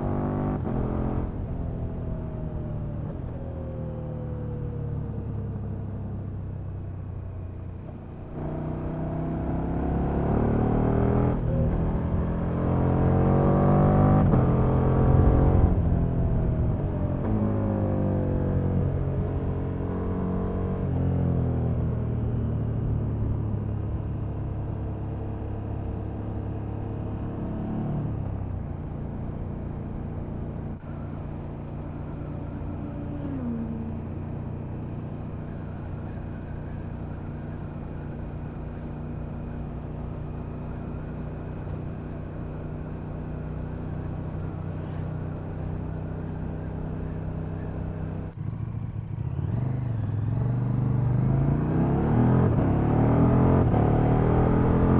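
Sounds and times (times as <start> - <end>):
motorcycle engine riding: 11.4 - 54.9.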